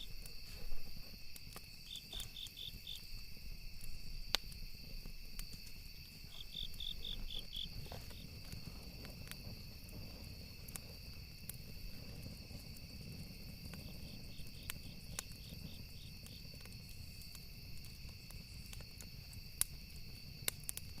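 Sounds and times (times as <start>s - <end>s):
burning wood crackling and popping: 0.0s - 21.0s
insects trilling: 0.0s - 21.0s
pulsed insect chirping: 1.2s - 4.2s, 5.0s - 8.6s.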